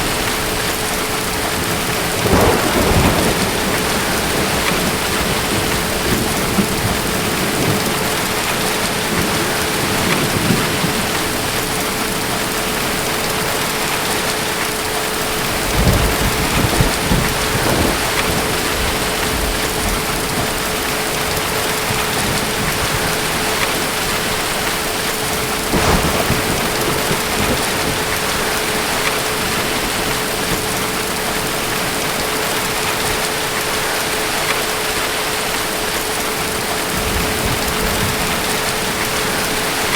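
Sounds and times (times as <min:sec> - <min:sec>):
steady rain falling: 0:00.0 - 0:39.9
rolls of thunder: 0:01.4 - 0:12.4, 0:15.4 - 0:32.1.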